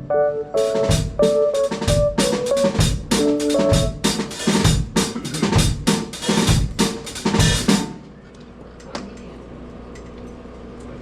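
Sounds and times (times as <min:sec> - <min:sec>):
held instrument notes: 0:00.0 - 0:04.6
drum kit playing: 0:00.0 - 0:08.0.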